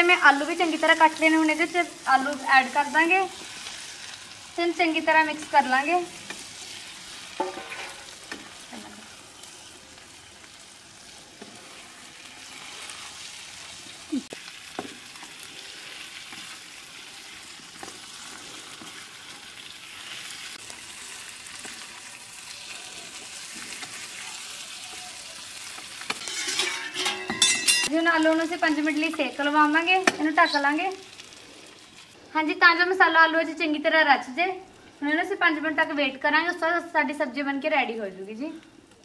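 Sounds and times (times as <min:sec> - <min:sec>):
potatoes sizzling in oil: 0:00.0 - 0:39.0
spatula scraping and knocking pan: 0:07.4 - 0:08.5, 0:26.0 - 0:27.9.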